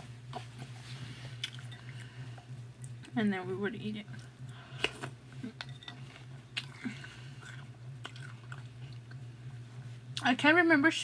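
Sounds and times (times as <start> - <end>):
low hum: 0.0 - 11.0
chewing soggy cereal: 5.8 - 9.4.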